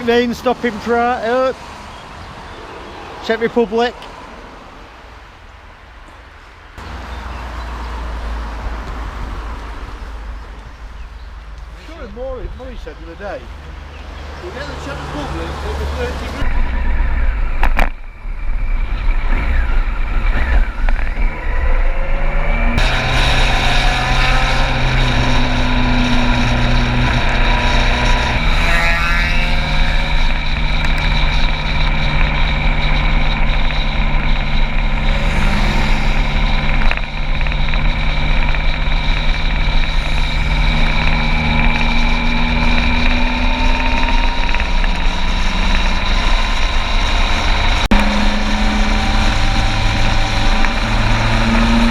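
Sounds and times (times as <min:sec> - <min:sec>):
motorcycle engine running: 0:22.7 - 0:51.9.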